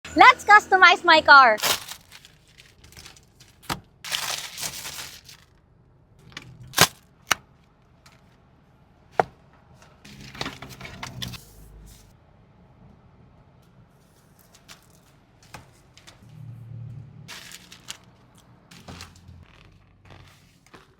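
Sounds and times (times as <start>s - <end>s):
rustling: 1.6s - 5.5s.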